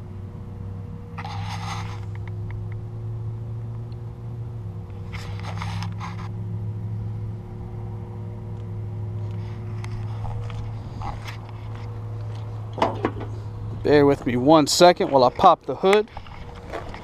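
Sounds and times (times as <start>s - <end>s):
vehicle engine idling: 0.0s - 17.0s
brief rustle: 5.1s - 6.3s.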